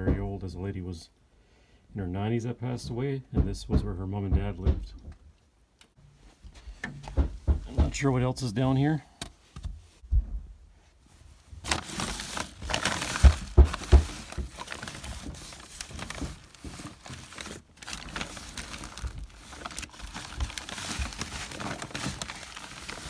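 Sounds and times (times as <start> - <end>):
dull thumps: 6.1 - 8.4, 9.2 - 10.6, 11.5 - 23.0
cloth and bags rustling: 11.0 - 23.0.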